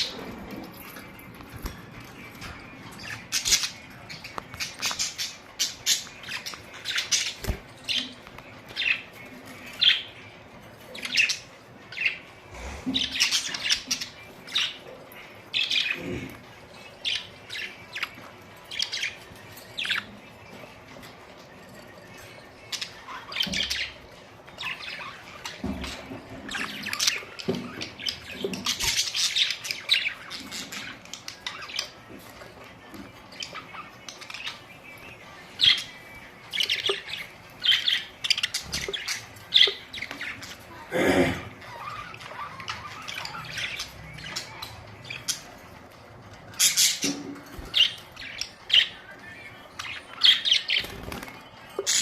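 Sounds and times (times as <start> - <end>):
budgerigars chirping: 33.2 - 40.8, 41.5 - 52.0.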